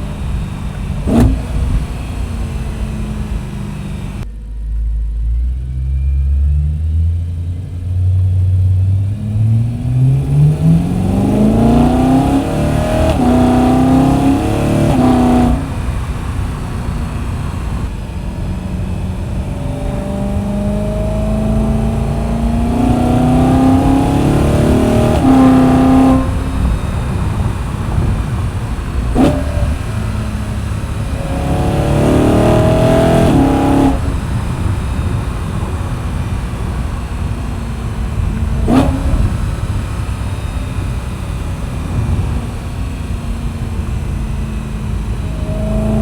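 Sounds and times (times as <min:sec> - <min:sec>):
car engine accelerating: 0:00.0 - 0:46.0.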